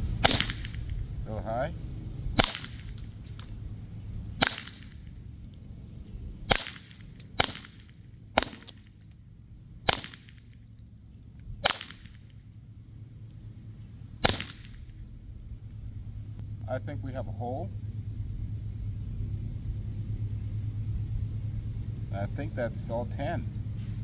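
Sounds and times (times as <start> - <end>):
paintball pistol shots: 0.1 - 1.3, 2.3 - 5.3, 6.5 - 9.2, 9.8 - 10.7, 11.6 - 12.5, 14.2 - 15.9.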